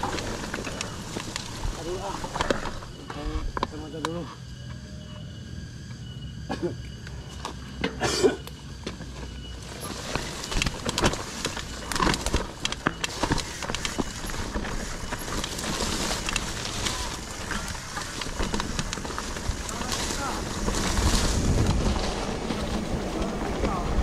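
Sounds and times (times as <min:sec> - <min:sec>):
bike rattling on rough trail: 0:00.0 - 0:04.2, 0:09.3 - 0:24.0
insects trilling: 0:00.0 - 0:24.0
wind noise on microphone: 0:09.9 - 0:24.0.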